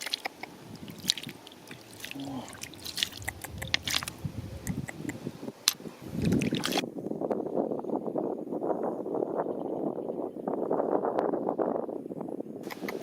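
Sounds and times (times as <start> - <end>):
stones clicking and knocking: 0.0 - 4.2
moving water: 0.0 - 6.8.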